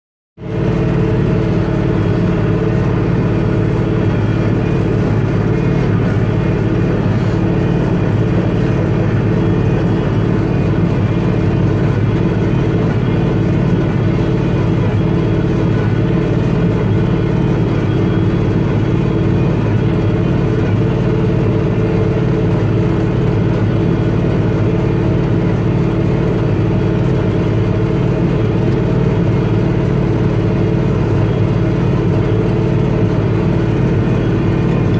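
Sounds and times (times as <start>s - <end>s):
square baler baling hay: 0.4s - 21.8s
tractor engine running: 0.4s - 34.9s.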